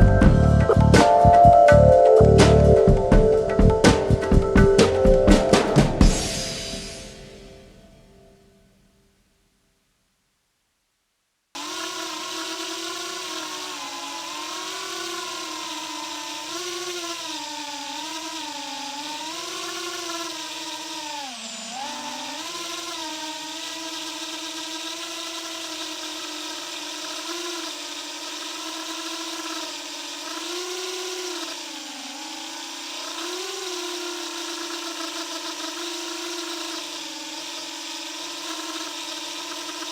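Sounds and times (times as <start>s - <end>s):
quadcopter motors whining: 0.0s - 8.2s, 11.6s - 39.9s.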